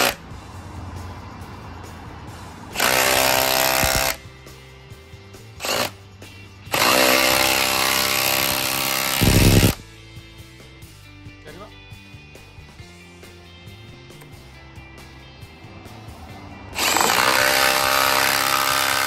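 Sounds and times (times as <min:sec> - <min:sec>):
impact driver driving bolt into wood: 0:06.7 - 0:09.8, 0:16.8 - 0:19.0.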